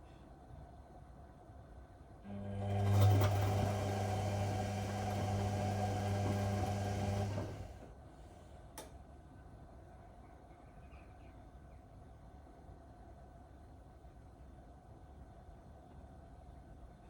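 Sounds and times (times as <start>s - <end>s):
washing machine motor hum: 2.2s - 8.0s.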